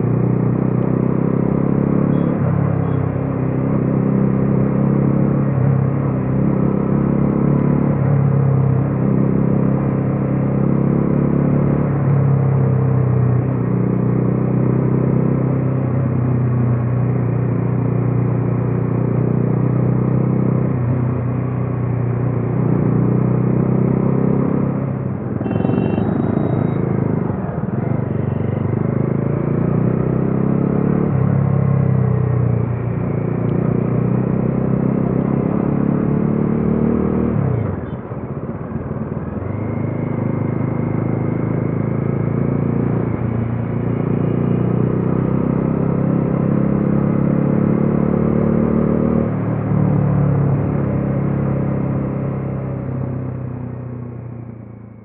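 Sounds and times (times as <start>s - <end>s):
motorcycle engine running: 24.0s - 31.1s.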